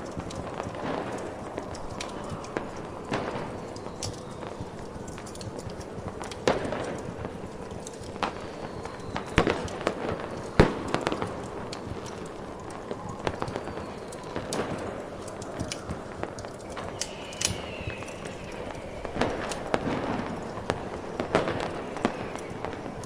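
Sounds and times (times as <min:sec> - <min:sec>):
fireworks bangs: 0:00.0 - 0:23.0
fireworks crackles: 0:00.0 - 0:23.0.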